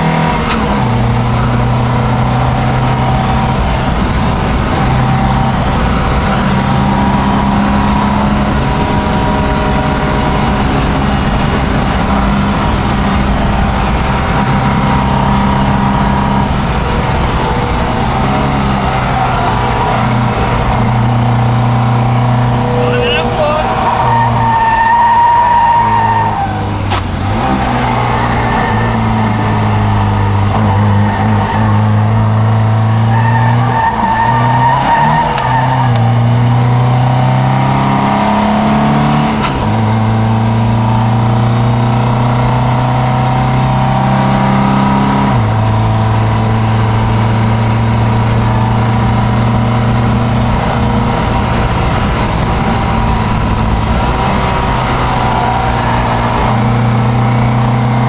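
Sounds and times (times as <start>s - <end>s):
car engine pulling hard: 0.0s - 58.0s.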